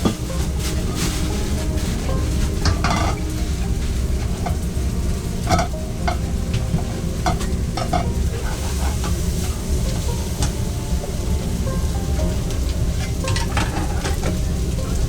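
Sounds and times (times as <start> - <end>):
food sizzling in a pan: 0.0 - 15.0
metal utensil clinking on pan: 1.8 - 4.6, 5.4 - 10.5, 12.2 - 15.0.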